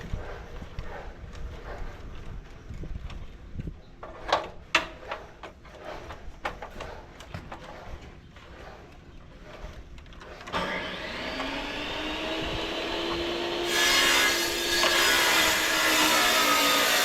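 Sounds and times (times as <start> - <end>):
rough grinding noise: 4.0 - 17.0
power tool motor running: 10.5 - 16.9.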